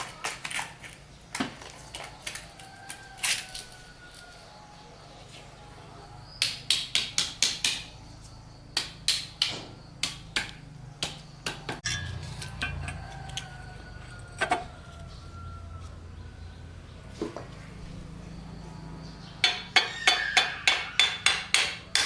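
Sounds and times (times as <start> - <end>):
tool knocking on metal: 19.4 - 22.0.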